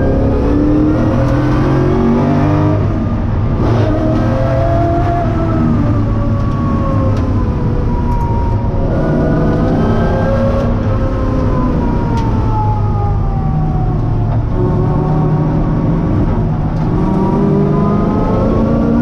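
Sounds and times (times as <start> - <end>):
race car engine running hard: 13.8 - 19.0.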